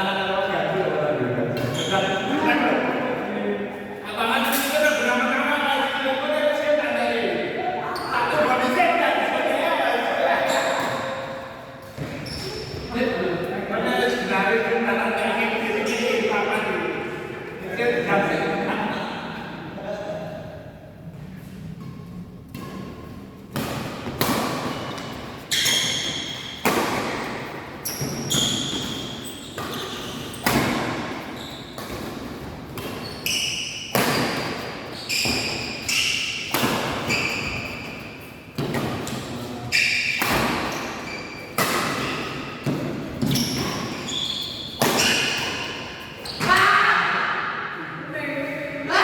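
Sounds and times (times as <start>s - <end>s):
racket hitting shuttlecock: 22.5s - 39.3s, 40.0s - 44.1s, 44.7s - 46.6s
short high squeaks: 27.8s - 30.5s, 43.3s - 45.3s.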